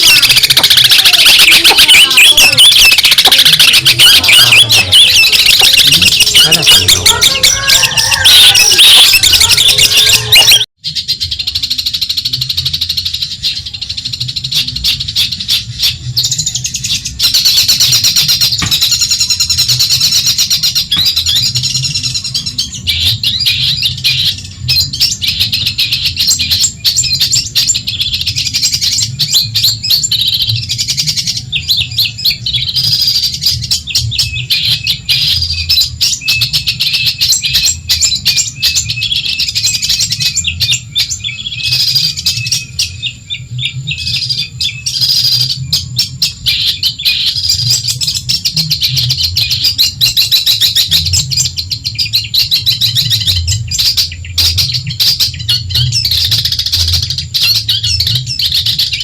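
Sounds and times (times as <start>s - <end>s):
bird singing chattering song: 0.0s - 59.0s.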